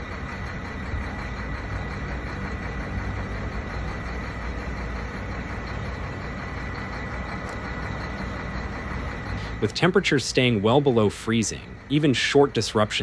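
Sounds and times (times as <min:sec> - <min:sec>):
engine idling: 0:00.0 - 0:13.0
faint steady whine: 0:00.0 - 0:13.0.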